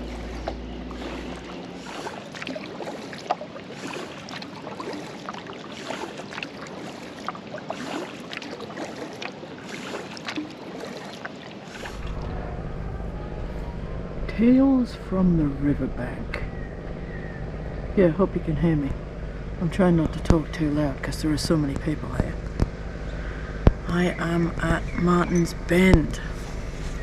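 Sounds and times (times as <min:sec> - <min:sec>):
kayak paddle strokes: 0:00.0 - 0:12.3, 0:23.7 - 0:27.0
water splashing and dripping: 0:00.0 - 0:12.3.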